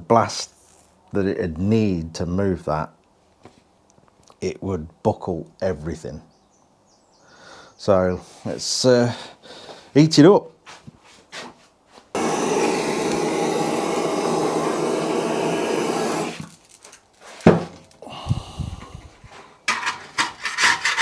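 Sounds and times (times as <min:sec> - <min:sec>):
heat gun blowing: 0:12.2 - 0:16.6
scraper scraping: 0:12.2 - 0:17.5.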